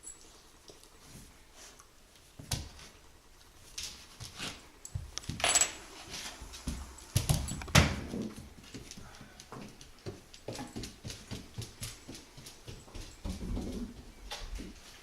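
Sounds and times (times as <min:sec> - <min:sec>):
puppy scuffling on floor: 0:03.6 - 0:15.0.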